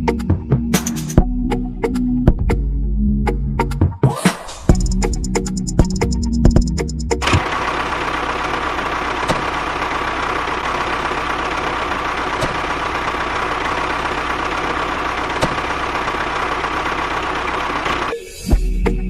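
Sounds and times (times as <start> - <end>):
engine idling: 4.8 - 18.8.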